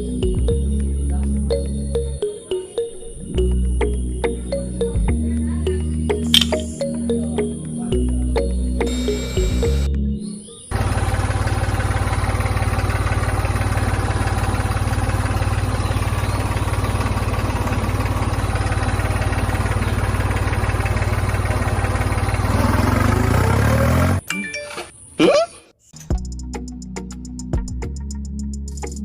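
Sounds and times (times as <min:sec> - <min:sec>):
tractor engine running: 0:08.4 - 0:09.9, 0:10.7 - 0:24.2.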